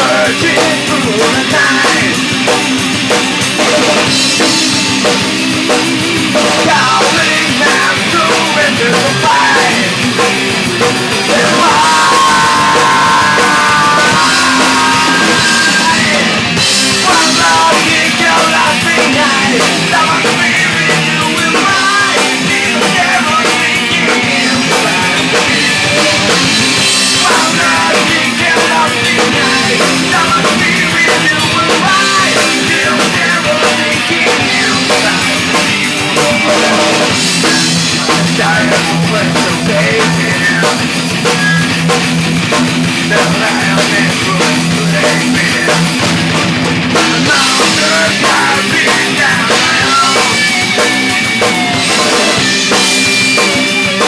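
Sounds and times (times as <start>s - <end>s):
punk rock band playing: 0.0s - 54.0s.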